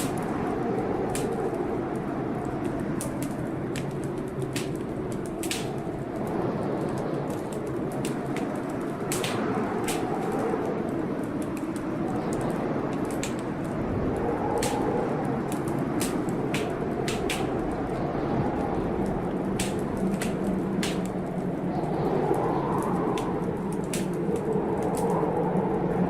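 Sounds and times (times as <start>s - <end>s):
storm with rain: 0.0s - 26.0s
wood fire crackling: 0.0s - 26.0s.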